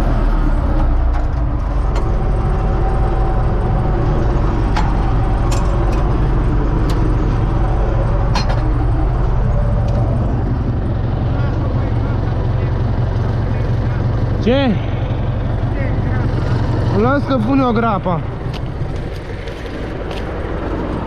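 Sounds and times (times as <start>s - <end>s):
tractor diesel engine droning: 0.0s - 21.0s
machinery clicks and knocks: 4.2s - 7.4s, 8.0s - 9.0s.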